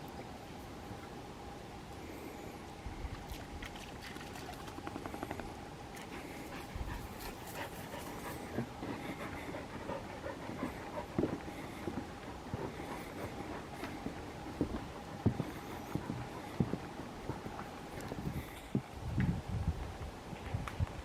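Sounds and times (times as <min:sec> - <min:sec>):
dog panting: 0:05.0 - 0:18.6.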